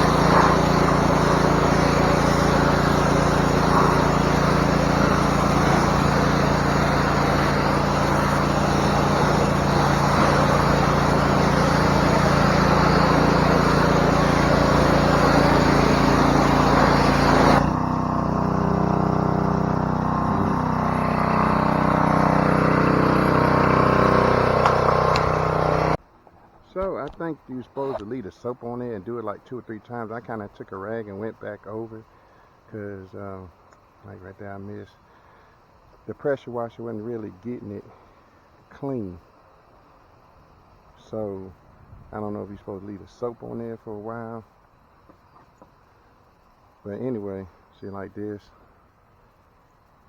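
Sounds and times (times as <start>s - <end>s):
pressure washer motor drone: 0.0s - 26.0s, 27.0s - 28.4s
pressure washer water jet spraying: 0.0s - 26.0s, 26.8s - 28.1s.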